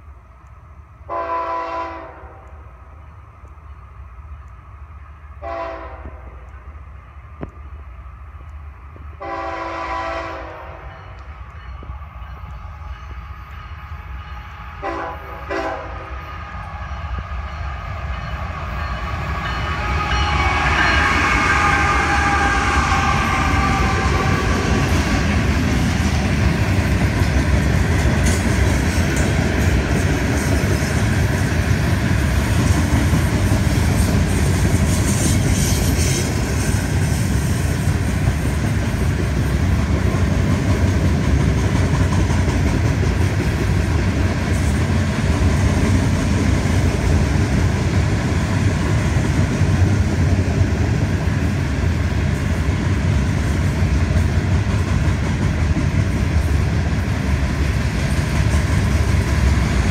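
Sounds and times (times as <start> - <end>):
diesel locomotives passing: 0.0 - 59.9
train horn blast: 1.1 - 2.6, 5.4 - 6.7, 9.2 - 25.3
train cars rumbling and clattering: 2.4 - 59.9.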